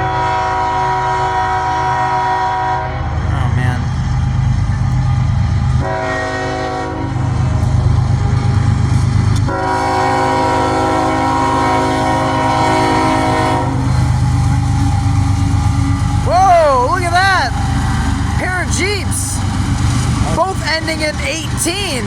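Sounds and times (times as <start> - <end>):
locomotive air horn blasts: 0.0 - 3.2, 5.8 - 7.6, 9.4 - 19.0
locomotive rumble passing: 0.0 - 22.0.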